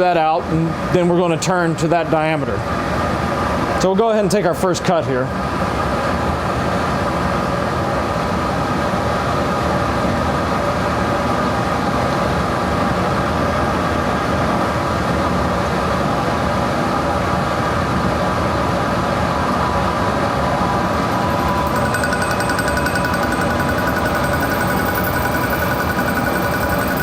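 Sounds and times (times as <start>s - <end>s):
high fine cutting sound: 20.8s - 27.0s
metal lathe running: 20.8s - 27.0s.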